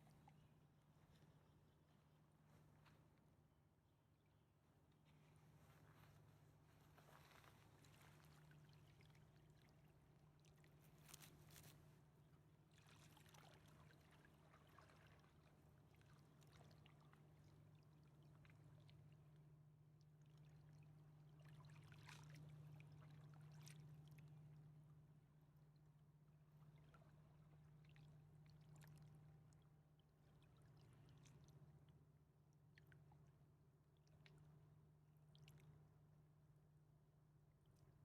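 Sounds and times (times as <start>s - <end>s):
river water lapping: 0.0s - 3.3s, 4.2s - 19.4s, 20.2s - 24.6s, 26.5s - 32.0s.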